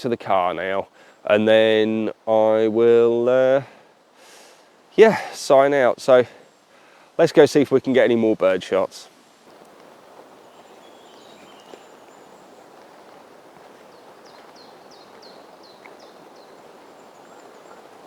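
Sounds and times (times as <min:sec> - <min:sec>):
woodland hiss: 0:00.0 - 0:18.0
songbird singing high notes: 0:10.3 - 0:18.0.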